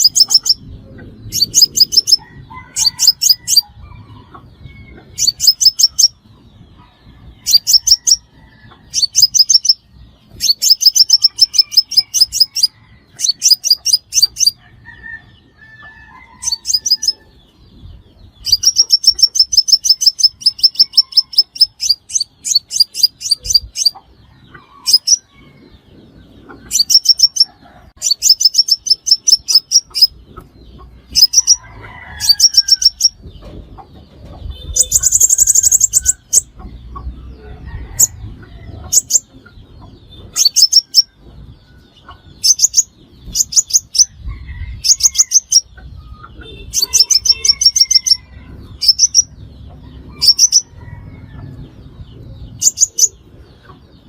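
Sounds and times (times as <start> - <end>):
sunbird high-pitched ticking calls: 0.0 - 0.6, 1.3 - 2.2, 2.8 - 3.6, 5.2 - 6.2, 8.9 - 9.8, 10.4 - 14.6, 18.4 - 24.0, 26.7 - 30.2, 40.3 - 41.1, 46.3 - 48.2.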